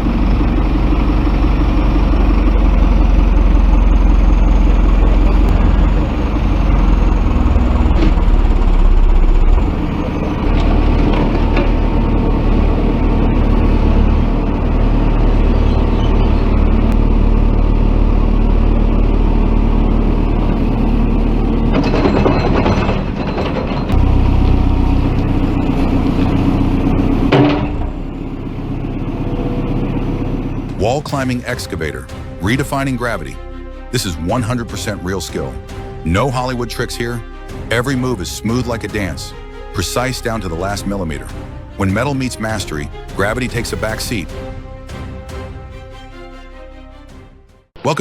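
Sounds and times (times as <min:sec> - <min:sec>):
rattling clatter: 0:00.0 - 0:15.4, 0:16.5 - 0:32.3
excavator diesel engine running: 0:00.0 - 0:47.0.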